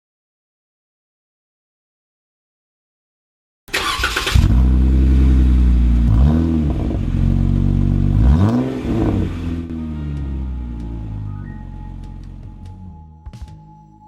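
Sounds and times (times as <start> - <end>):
engine cranking: 3.7 - 4.7
engine revving: 3.7 - 12.5.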